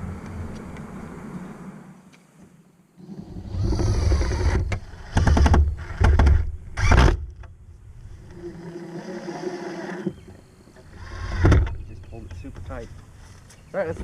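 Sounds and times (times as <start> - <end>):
power drill driving screws: 3.1 - 7.2.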